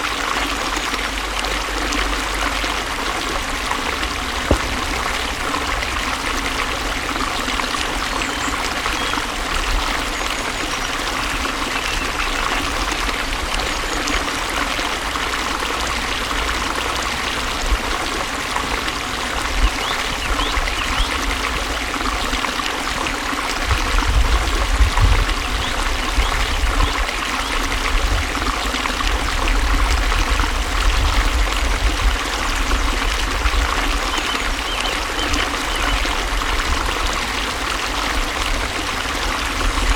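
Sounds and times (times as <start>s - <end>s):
water rushing and trickling: 0.0s - 39.9s
low rumble: 4.4s - 6.9s.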